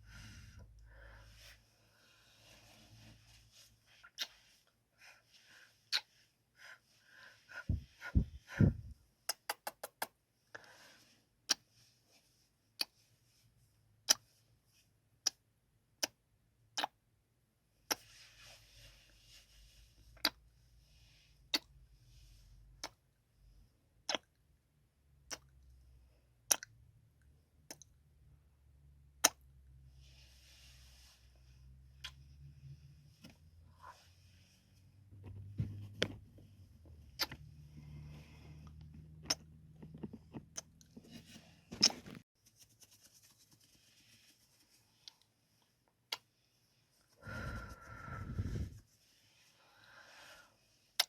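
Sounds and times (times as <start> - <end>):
wet kissing and lip smacks: 5.9 - 6.1, 9.3 - 10.1.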